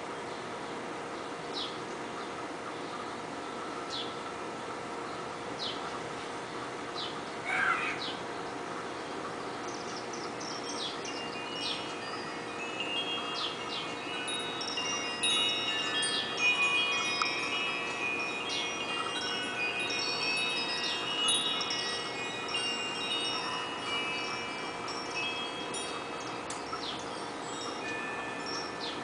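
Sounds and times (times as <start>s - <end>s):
wind chimes ringing: 8.8s - 29.0s.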